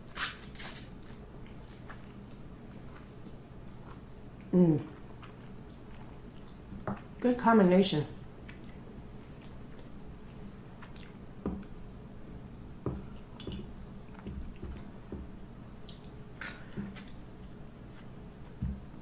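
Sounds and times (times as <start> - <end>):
chewing noodles: 0.6 - 7.2, 15.8 - 18.6.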